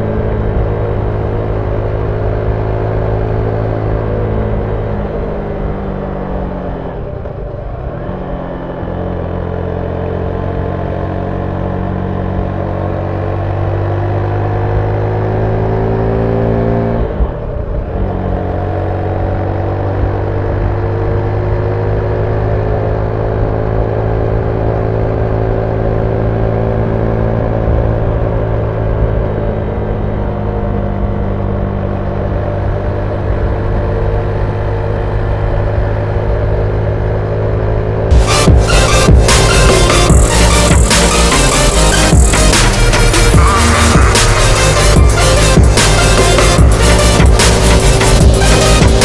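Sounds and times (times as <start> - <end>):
motorcycle engine revving: 33.4 - 49.0.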